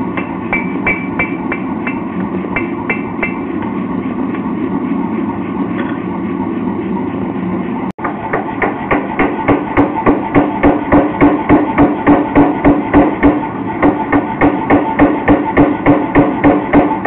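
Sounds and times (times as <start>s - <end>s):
hammer striking steel on anvil: 0.0s - 3.7s, 8.0s - 17.0s.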